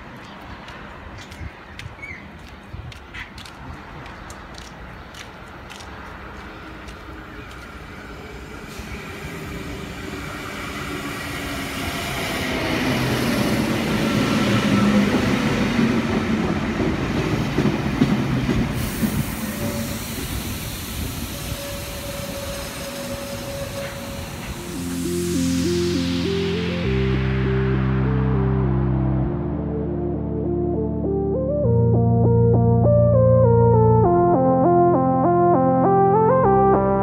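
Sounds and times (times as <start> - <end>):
electric train rumble: 6.9 - 29.9
train whine: 7.0 - 29.8.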